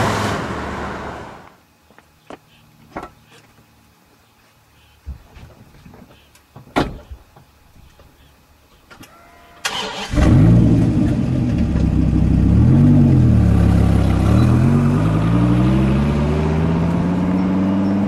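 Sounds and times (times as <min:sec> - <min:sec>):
sports car engine revving: 0:00.0 - 0:01.5, 0:10.1 - 0:18.0.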